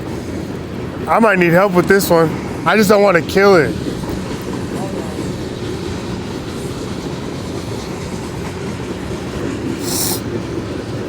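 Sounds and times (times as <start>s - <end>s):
short high hiss: 9.8s - 10.3s.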